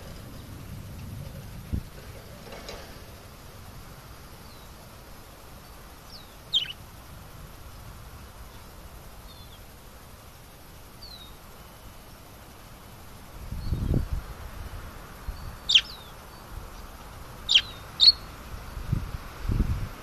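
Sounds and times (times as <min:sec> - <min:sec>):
low background rumble: 0:00.0 - 0:20.0
high bird chirps: 0:06.1 - 0:06.8, 0:15.4 - 0:16.1, 0:17.5 - 0:18.3.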